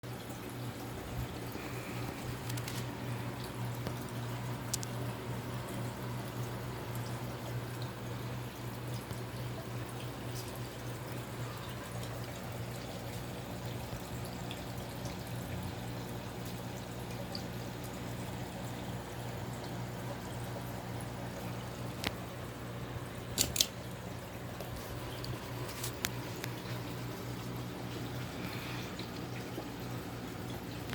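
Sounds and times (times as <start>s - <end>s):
ceiling fan running: 0.1s - 30.9s
sharp clicks: 23.4s - 23.8s.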